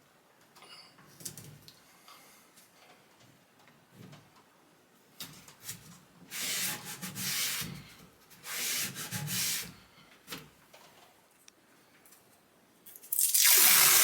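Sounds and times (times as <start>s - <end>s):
wood sanded by hand: 6.3s - 7.7s.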